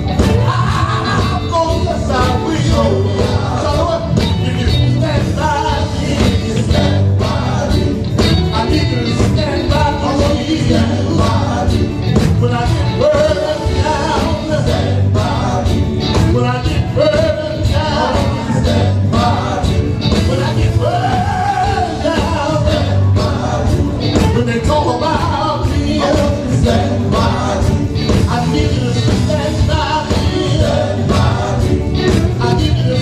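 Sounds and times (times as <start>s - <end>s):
band playing: 0.0s - 33.0s
steady drum beat: 0.0s - 33.0s
voices singing gospel: 0.0s - 33.0s.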